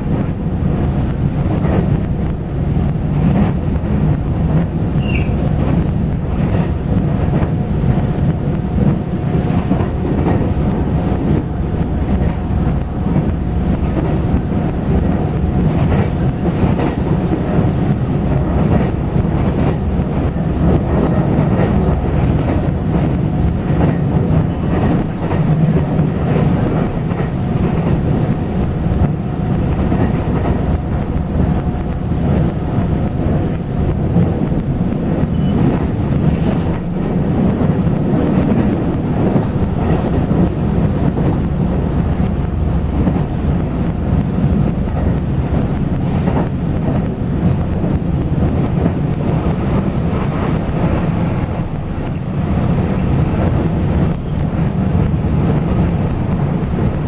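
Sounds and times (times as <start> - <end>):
train low rumble: 0.0 - 57.0
brief high squeak: 5.0 - 5.4.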